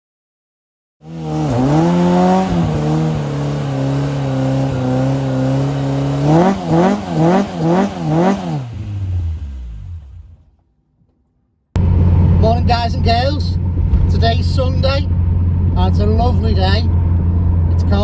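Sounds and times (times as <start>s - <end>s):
car engine revving: 1.0s - 10.5s.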